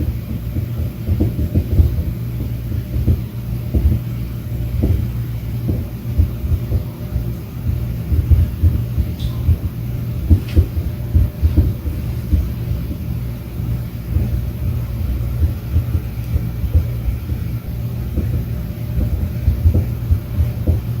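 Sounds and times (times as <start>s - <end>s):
low hum: 0.0s - 21.0s
muffled tapping and knocking: 0.6s - 4.0s, 4.8s - 5.0s, 5.6s - 6.9s, 8.1s - 13.0s, 15.4s - 20.9s.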